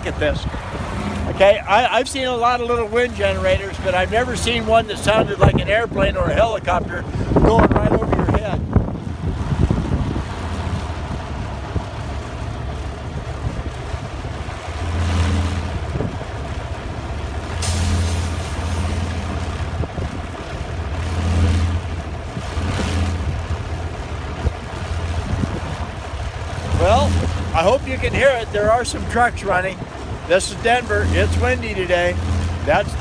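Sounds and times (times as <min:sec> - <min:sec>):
wind generator blades droning: 0:00.0 - 0:33.0.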